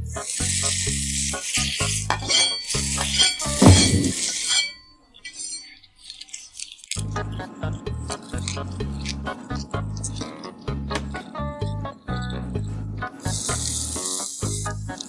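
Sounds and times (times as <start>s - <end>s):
background music with steady beat: 0.0s - 4.6s, 7.0s - 15.0s
light clinks: 1.6s - 7.0s
food sizzling in a pan: 13.3s - 15.0s.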